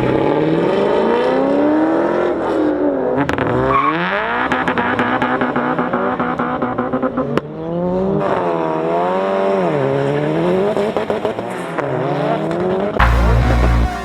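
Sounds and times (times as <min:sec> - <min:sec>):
car engine revving hard: 0:00.0 - 0:14.0
heavy bass music: 0:13.0 - 0:14.0.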